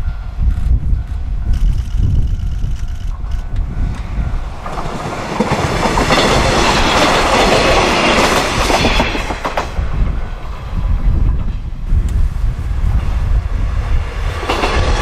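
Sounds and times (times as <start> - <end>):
diesel railcars passing: 0.0 - 15.0
wheels clicking over rail joints: 1.7 - 11.7.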